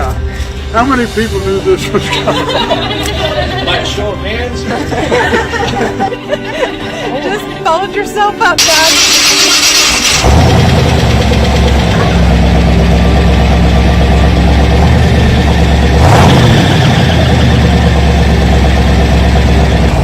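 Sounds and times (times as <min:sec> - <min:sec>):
car engine idling: 0:08.6 - 0:20.0.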